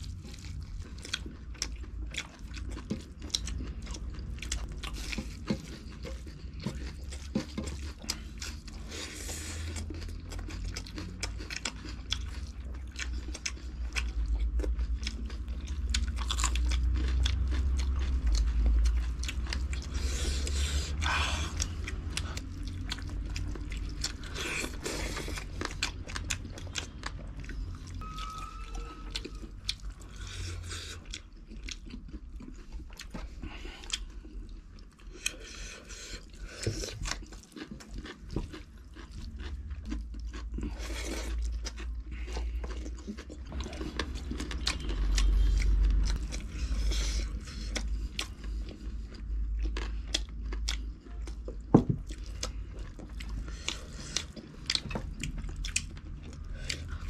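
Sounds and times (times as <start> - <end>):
people chewing food: 0.0 - 57.0.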